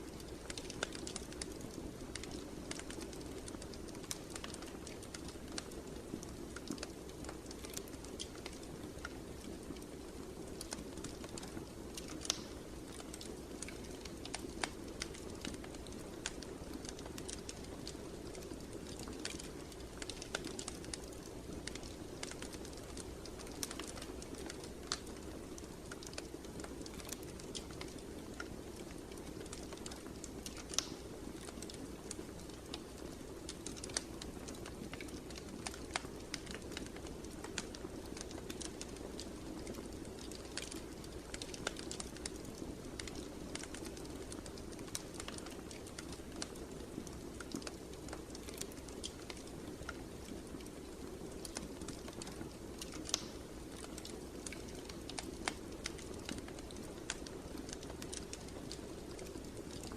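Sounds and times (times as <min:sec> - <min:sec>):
fireplace fire crackling: 0:00.0 - 0:59.9.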